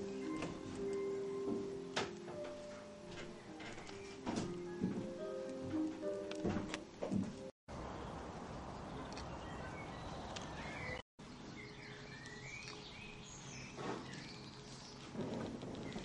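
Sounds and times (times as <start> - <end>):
small birds chirping: 7.8 - 16.0.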